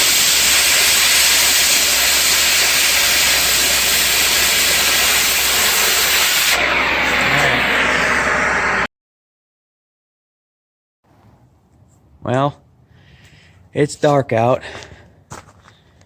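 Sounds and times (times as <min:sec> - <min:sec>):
gas escaping hiss: 0:00.0 - 0:08.9.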